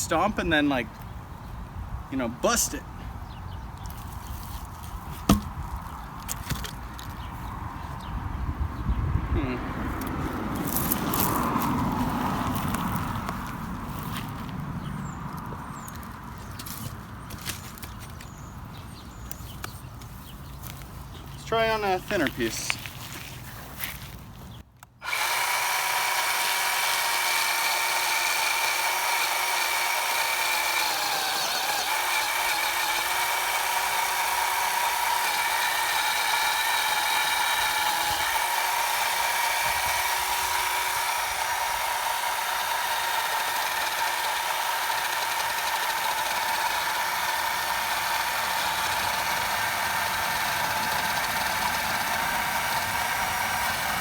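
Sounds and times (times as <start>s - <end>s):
electric chainsaw cutting wood: 10.0s - 14.3s, 25.0s - 54.0s.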